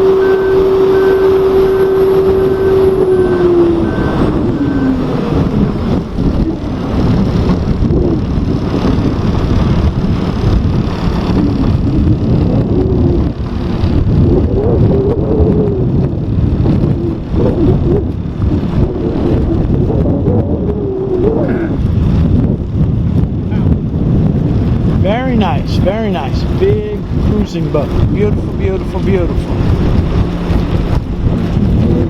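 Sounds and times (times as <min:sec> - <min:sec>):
large engine running: 0:00.0 - 0:32.0
wind rumble on microphone: 0:00.0 - 0:32.0.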